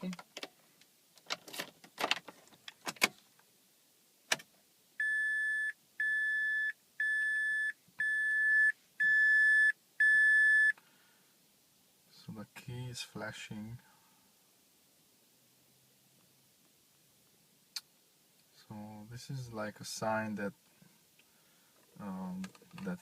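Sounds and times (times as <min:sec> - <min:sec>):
car warning chime beeping: 0:05.0 - 0:10.8.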